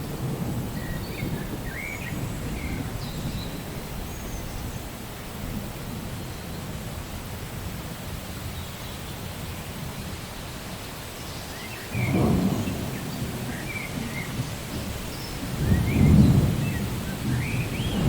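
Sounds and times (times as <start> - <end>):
thunder rumbling: 0.0 - 6.2, 12.0 - 18.0
steady rain: 0.0 - 18.0.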